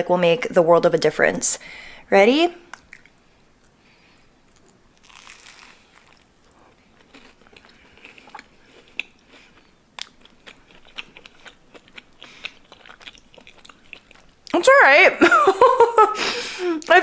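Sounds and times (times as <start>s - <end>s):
chewing with small crunches: 2.7s - 14.6s
biting into crunchy toast: 4.5s - 14.4s.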